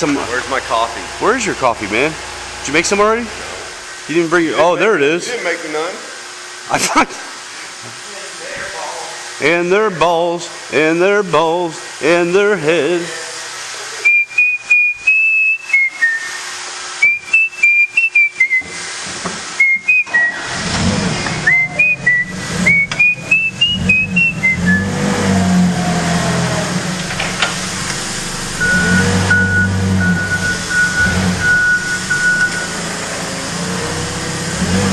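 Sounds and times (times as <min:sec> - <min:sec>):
reversing beeper: 0:00.0 - 0:03.8, 0:19.9 - 0:25.7, 0:28.1 - 0:33.4
vehicle engine running: 0:00.0 - 0:04.3, 0:20.5 - 0:34.9
person whistling a tune: 0:14.0 - 0:18.9, 0:19.6 - 0:20.5, 0:21.3 - 0:25.1, 0:28.6 - 0:32.7.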